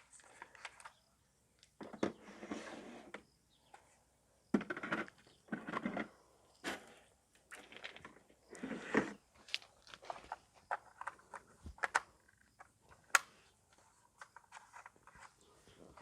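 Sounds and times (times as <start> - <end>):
rustling and rubbing: 13.8 - 16.0.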